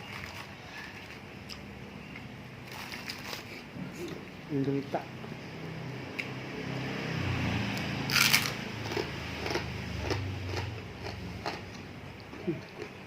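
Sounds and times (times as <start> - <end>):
person chewing with clicks: 8.1 - 13.0.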